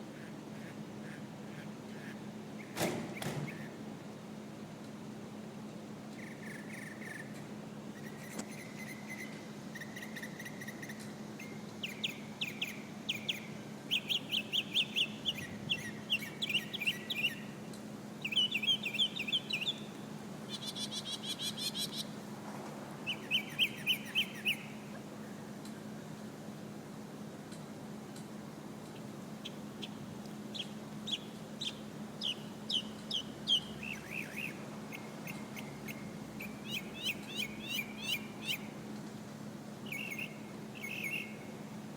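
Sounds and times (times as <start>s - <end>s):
steady low hum: 3.4s - 41.9s
mockingbird singing: 11.4s - 17.5s, 18.2s - 19.9s, 20.5s - 22.1s, 23.1s - 24.8s, 29.4s - 38.7s, 39.8s - 41.4s.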